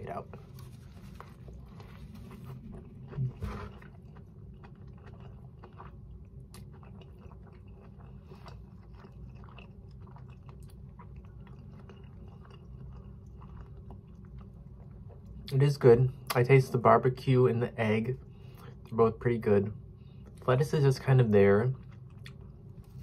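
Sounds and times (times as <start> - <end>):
person biting and chewing: 0.5 - 14.5.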